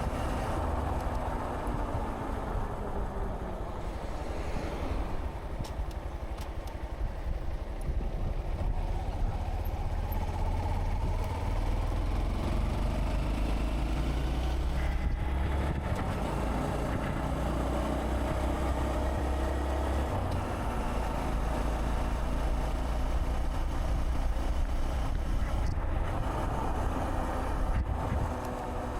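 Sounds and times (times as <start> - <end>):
road and wind noise: 0.0 - 28.9.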